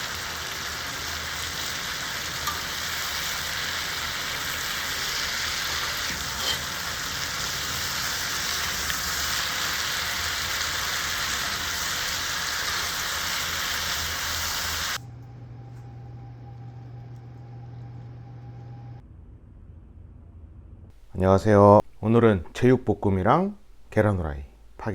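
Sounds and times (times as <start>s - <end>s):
meat sizzling in a frying pan: 0.0s - 15.0s
low hum: 15.0s - 22.6s.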